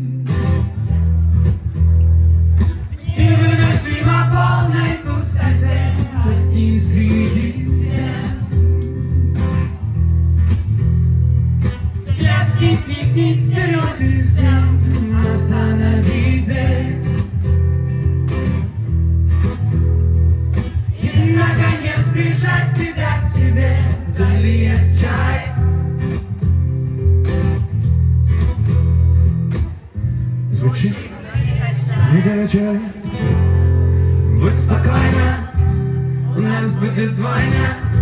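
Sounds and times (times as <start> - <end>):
strummed acoustic guitar: 0.0 - 38.0
person singing: 21.0 - 23.8.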